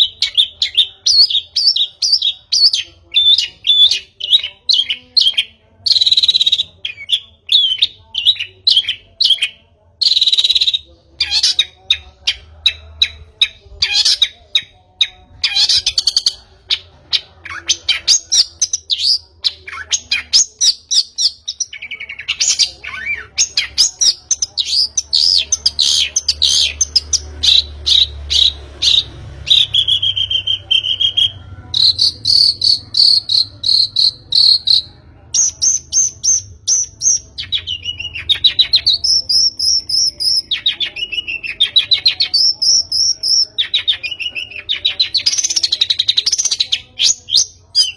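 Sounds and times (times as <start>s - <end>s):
shrike singing chirps and trills: 0.0s - 47.9s.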